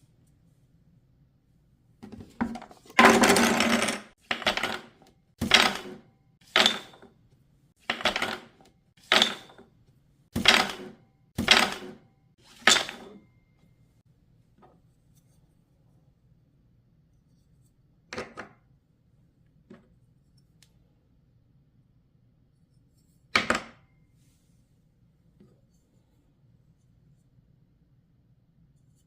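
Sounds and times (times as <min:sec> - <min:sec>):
wooden puzzle pieces clattering: 0:03.0 - 0:04.9
wooden pieces clacking: 0:03.0 - 0:07.0, 0:07.9 - 0:09.6.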